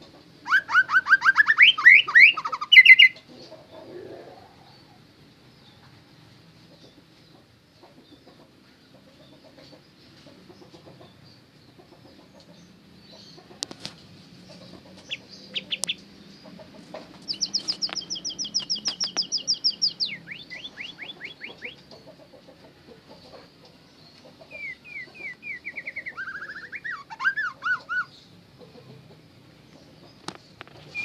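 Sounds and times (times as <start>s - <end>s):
songbird singing trills: 0.4s - 6.0s, 14.4s - 22.4s, 23.0s - 28.9s, 29.6s - 31.0s.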